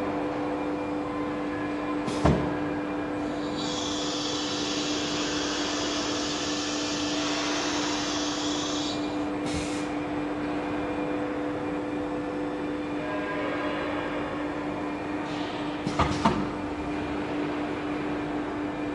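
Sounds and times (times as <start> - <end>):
machine hum: 0.0 - 13.8
compressed air hissing: 3.3 - 9.9.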